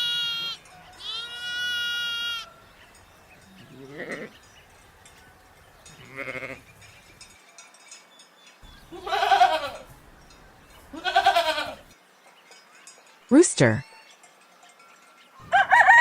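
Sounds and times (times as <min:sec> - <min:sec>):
goat bleating: 0:00.0 - 0:02.5, 0:03.6 - 0:04.3, 0:06.0 - 0:06.7, 0:08.7 - 0:10.0, 0:10.8 - 0:11.9.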